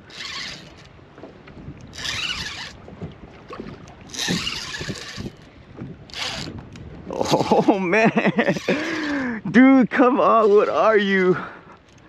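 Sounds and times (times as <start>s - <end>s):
fishing reel drag rasping: 0.0s - 1.0s, 1.9s - 2.8s, 4.0s - 6.6s, 8.4s - 9.3s, 10.4s - 11.5s.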